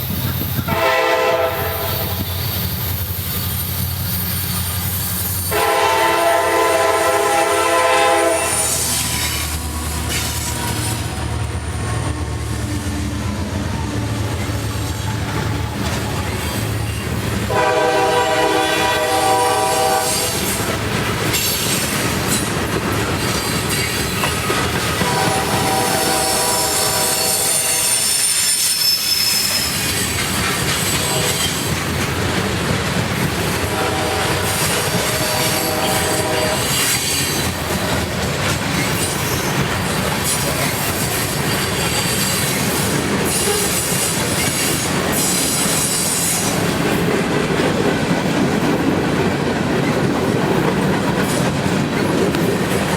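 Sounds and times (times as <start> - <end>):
rumble of rolling train: 0.0 - 52.9
train air horn blasts: 0.7 - 2.5, 5.3 - 9.8, 17.5 - 20.7, 25.0 - 29.6, 30.9 - 31.5, 33.6 - 37.2.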